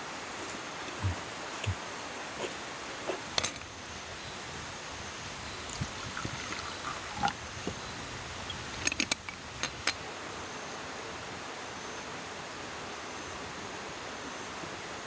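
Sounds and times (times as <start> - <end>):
mountain stream rushing: 0.0 - 14.1
sharp clicks: 5.3 - 10.0.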